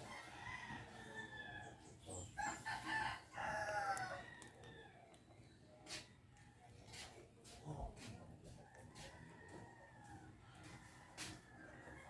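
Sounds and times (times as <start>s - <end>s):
rooster crowing: 2.4s - 4.9s.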